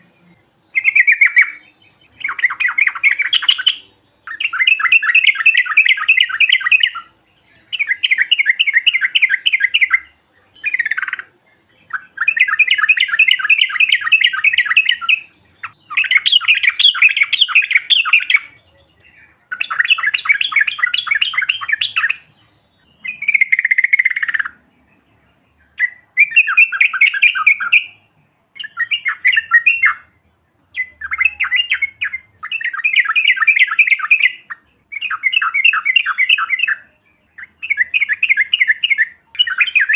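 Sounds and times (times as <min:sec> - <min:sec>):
bird chattering trills: 0:00.7 - 0:24.6.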